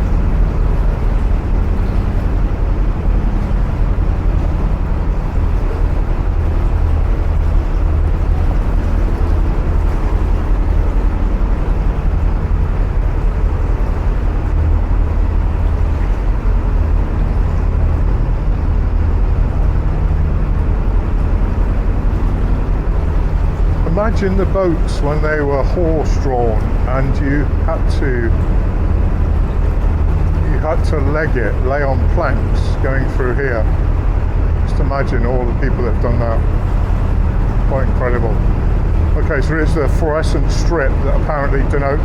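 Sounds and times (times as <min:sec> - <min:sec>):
diesel engine rumbling in tunnel: 0:00.0 - 0:42.0.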